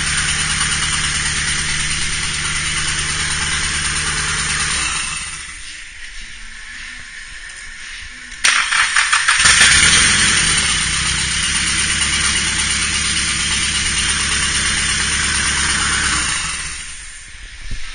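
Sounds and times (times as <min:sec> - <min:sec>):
car engine running: 0:00.0 - 0:05.9, 0:09.2 - 0:17.3
starter cranking: 0:08.4 - 0:17.0.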